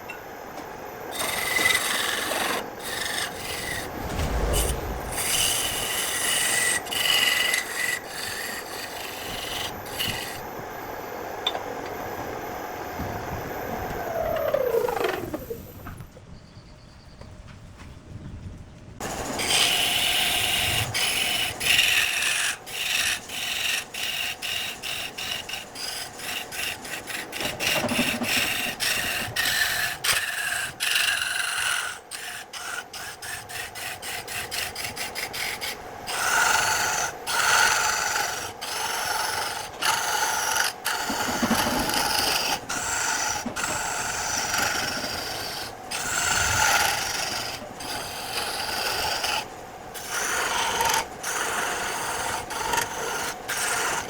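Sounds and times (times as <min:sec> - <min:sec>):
hand tool rasping wood: 0:01.2 - 0:03.8, 0:19.4 - 0:54.0.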